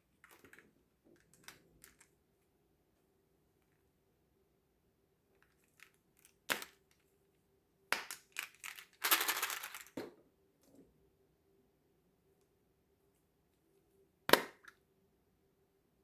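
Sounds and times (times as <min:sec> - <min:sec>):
crackling and crushing: 0:05.4 - 0:07.1, 0:07.9 - 0:10.0
continuous crinkling: 0:08.3 - 0:10.0.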